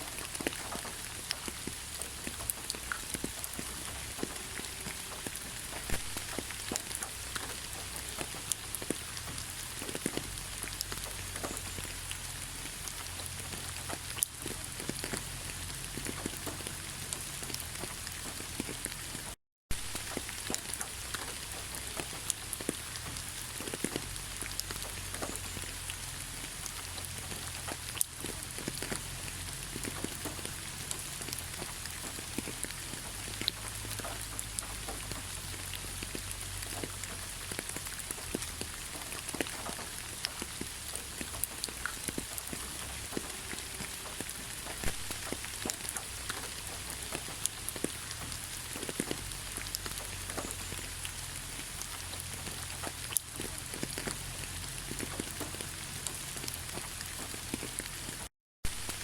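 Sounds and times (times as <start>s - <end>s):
raindrops ticking: 0.0s - 59.0s
heavy rain hissing: 19.7s - 59.0s.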